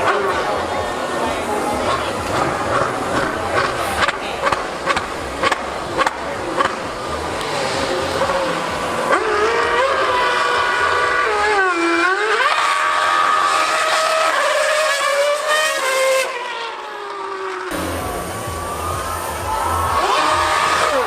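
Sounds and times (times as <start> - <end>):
racing car engine screaming: 0.0 - 21.0.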